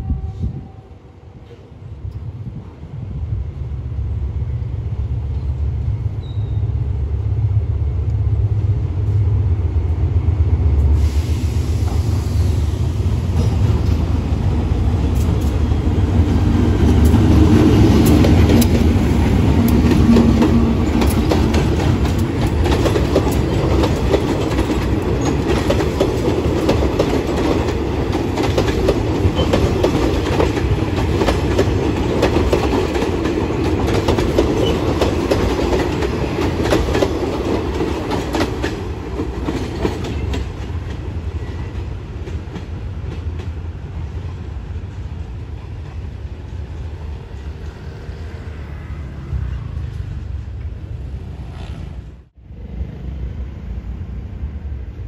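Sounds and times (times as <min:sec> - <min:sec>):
diesel locomotive engine hum: 0:00.0 - 0:55.0
wheels clacking over rail joints: 0:14.9 - 0:43.6.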